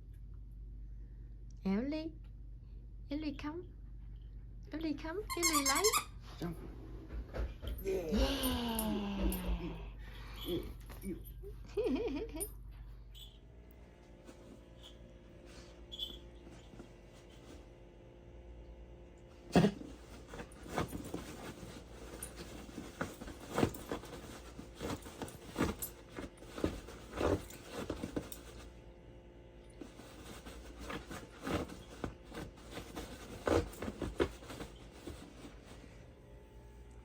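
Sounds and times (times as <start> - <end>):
dogs playing with a toy: 19.4 - 28.8, 29.6 - 35.9.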